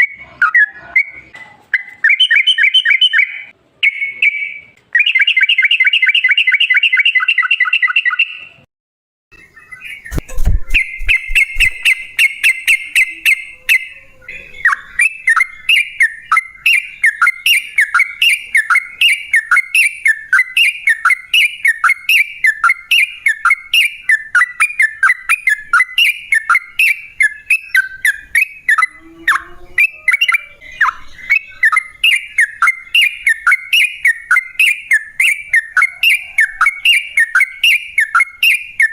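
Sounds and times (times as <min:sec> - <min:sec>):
bird chattering trill: 0:00.0 - 0:08.4, 0:09.4 - 0:38.9
low thumps: 0:10.1 - 0:12.2.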